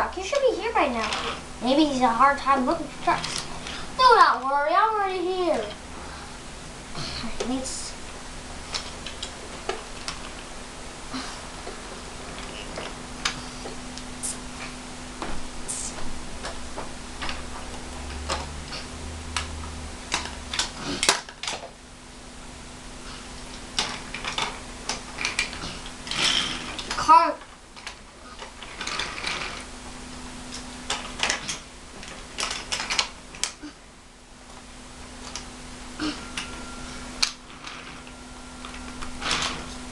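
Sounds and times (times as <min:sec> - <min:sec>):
faint steady hum: 0:00.0 - 0:39.9
wooden toys clicking and clattering: 0:00.2 - 0:01.4, 0:02.6 - 0:04.6, 0:08.7 - 0:10.5, 0:17.2 - 0:21.8, 0:23.4 - 0:29.7, 0:30.5 - 0:33.8.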